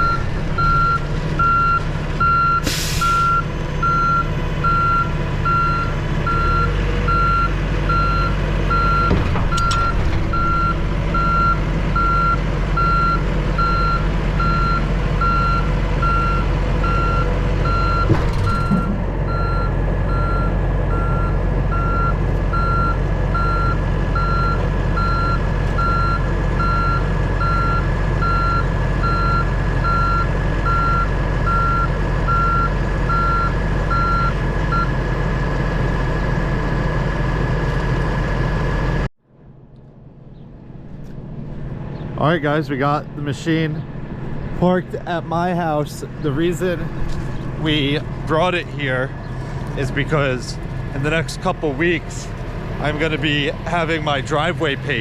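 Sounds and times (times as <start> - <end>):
backup alarm beeping: 0.0 - 34.9
diesel truck engine running: 0.0 - 55.0.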